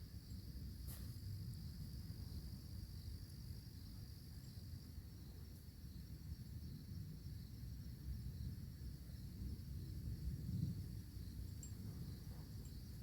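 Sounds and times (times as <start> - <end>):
night insects trilling: 0.0 - 13.0.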